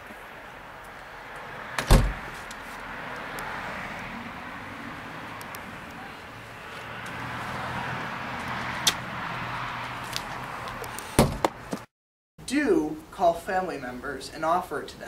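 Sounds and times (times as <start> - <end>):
heavy thump: 1.8 - 2.3, 11.2 - 11.6.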